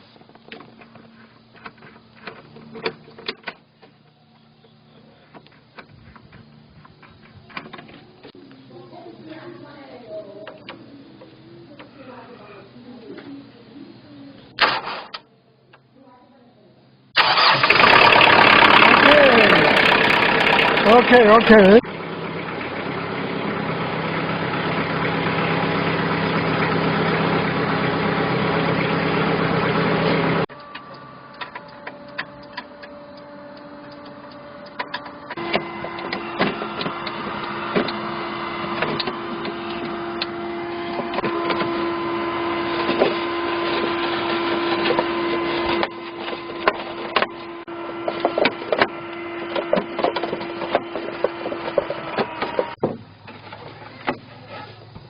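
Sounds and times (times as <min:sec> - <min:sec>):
tractor diesel engine idling: 0:17.2 - 0:55.0.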